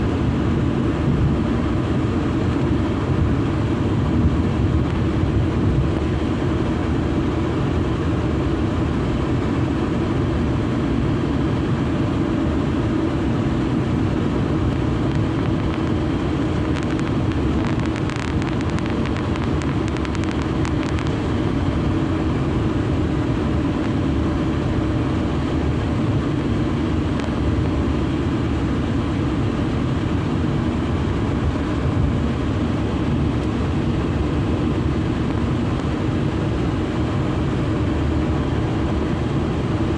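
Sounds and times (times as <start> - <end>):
car road and engine noise: 0.0 - 39.9.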